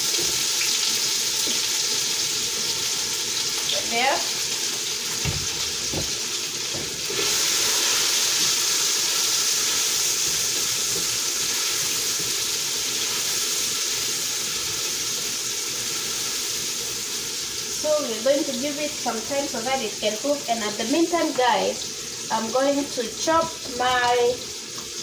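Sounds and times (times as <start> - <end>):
onions sizzling in oil: 0.0 - 25.0
knocks on pan: 5.2 - 7.1.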